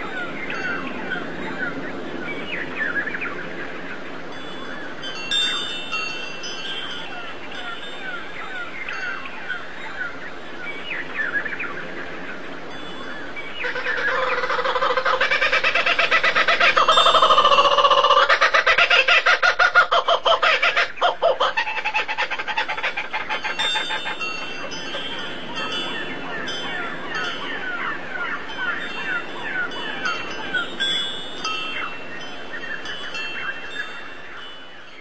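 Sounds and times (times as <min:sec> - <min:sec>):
loud pulsing bird call: 0:13.4 - 0:30.8.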